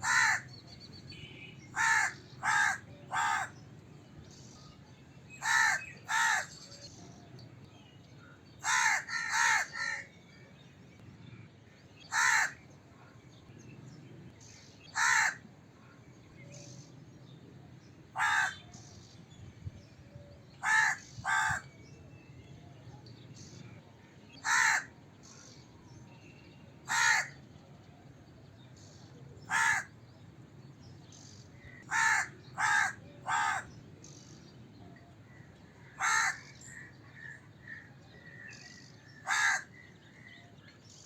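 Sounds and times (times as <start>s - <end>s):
crow cawing: 0.0s - 0.5s, 1.8s - 3.6s, 5.4s - 6.5s, 8.6s - 10.1s, 12.1s - 12.6s, 14.9s - 15.4s, 18.2s - 18.6s, 20.6s - 21.6s, 24.4s - 24.9s, 26.9s - 27.4s, 29.5s - 29.9s, 31.8s - 33.7s, 35.8s - 37.8s, 39.2s - 39.8s.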